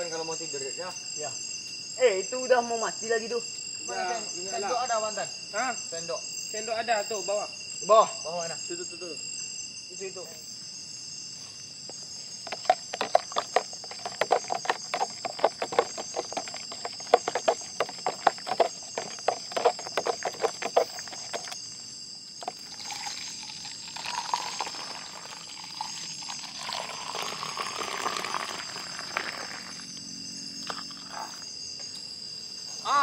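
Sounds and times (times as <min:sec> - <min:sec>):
crickets chirping: 0:00.0 - 0:33.0
liquid being poured: 0:22.4 - 0:29.7.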